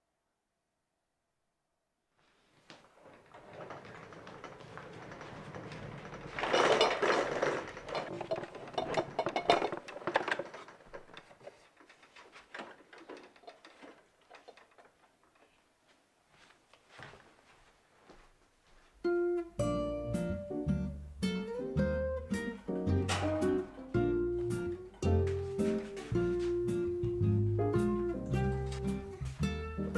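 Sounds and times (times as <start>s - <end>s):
small objects clicking and knocking: 5.5s - 15.1s
slippers scuffing on wooden floor: 15.9s - 19.0s, 25.3s - 27.1s.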